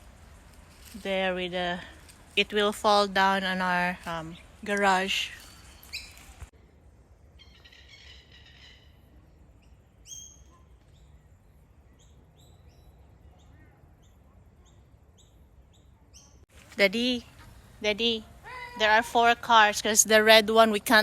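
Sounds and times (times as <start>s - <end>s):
bird warbling song: 4.3s - 6.5s, 7.4s - 16.4s
bird sharp high chirps: 5.2s - 6.4s, 9.6s - 11.2s.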